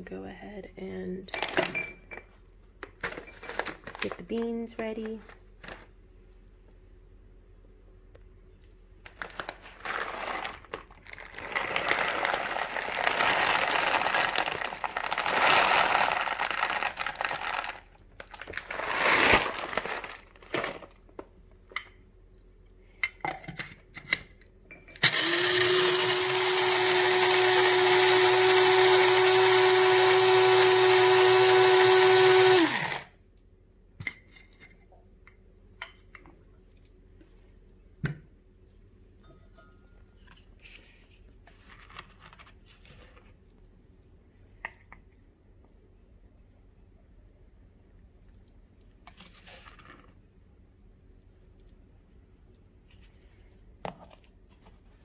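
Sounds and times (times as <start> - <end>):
coffee beans rattling: 9.8 - 20.6, 25.0 - 33.1
coffee grinder motor whirring: 11.3 - 17.8, 25.0 - 33.1.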